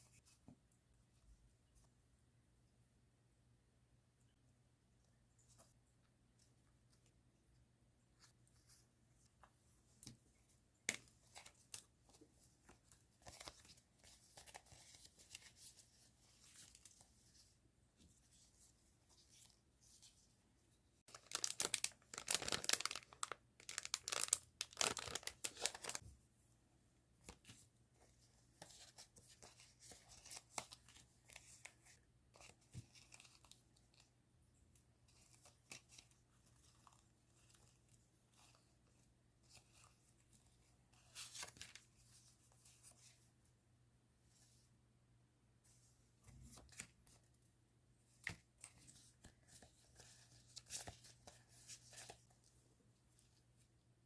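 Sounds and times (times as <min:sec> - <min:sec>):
packaging rustling and crinkling: 0:21.1 - 0:26.0.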